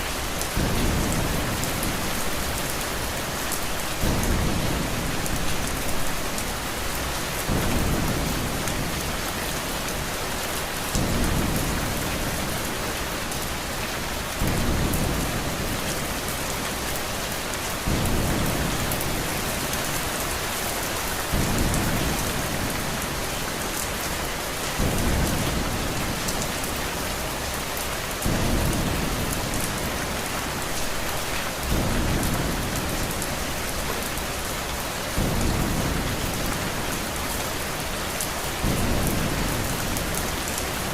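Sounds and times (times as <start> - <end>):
heavy rain hiss: 0.0 - 40.9.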